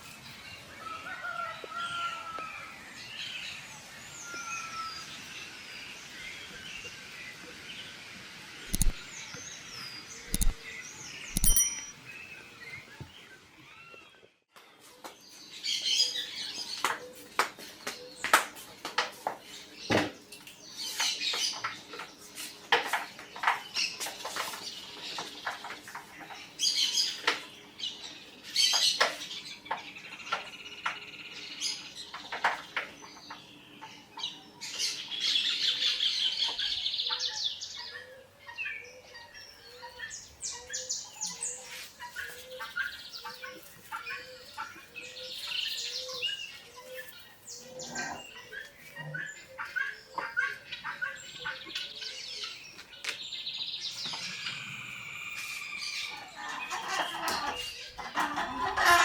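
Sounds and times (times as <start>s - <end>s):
sharp clicks: 8.7s - 9.1s, 10.3s - 10.6s, 11.3s - 12.0s
birds chirping and squawking: 20.6s - 59.0s.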